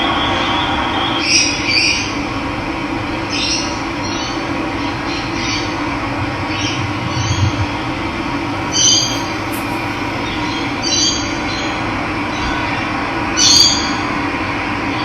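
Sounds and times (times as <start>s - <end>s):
running water: 8.6s - 10.9s
bird chirping: 8.6s - 11.1s.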